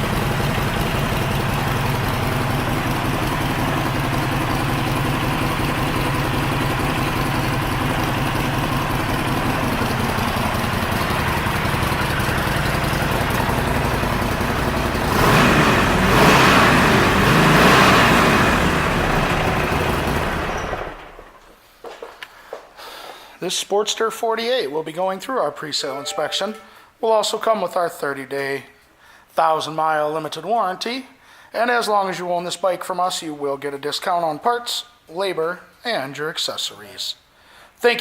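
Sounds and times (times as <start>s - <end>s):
motorcycle throttle revving: 0.0s - 21.2s
motorcycle engine idling: 0.0s - 21.4s.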